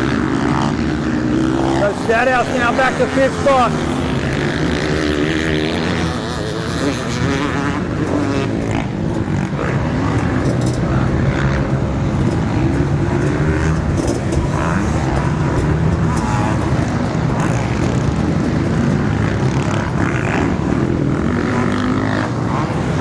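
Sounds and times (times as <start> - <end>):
motocross engines revving: 0.0 - 23.0.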